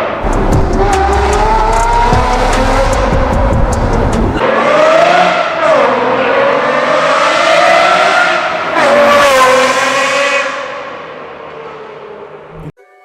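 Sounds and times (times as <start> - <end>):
car engine accelerating: 0.2 - 7.8.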